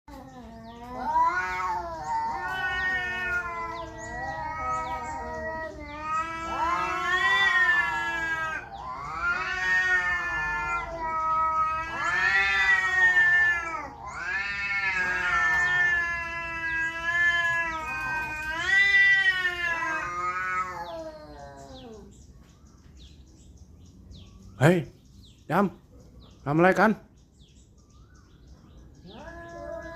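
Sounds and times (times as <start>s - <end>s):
cats yowling: 0.1s - 22.2s, 28.2s - 29.9s.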